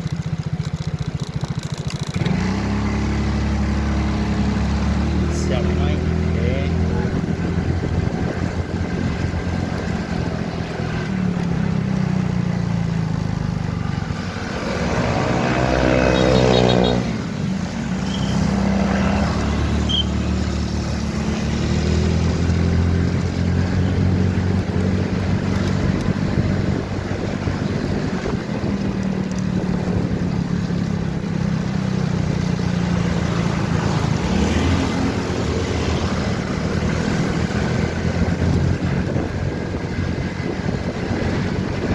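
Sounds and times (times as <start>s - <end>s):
motorcycle engine running: 0.0s - 41.9s
louder passing engine: 2.2s - 29.0s, 29.6s - 41.9s.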